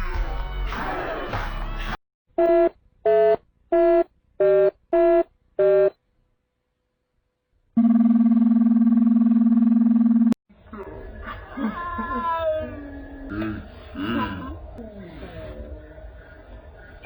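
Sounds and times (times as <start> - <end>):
loud buzzing tone: 7.8 - 10.4.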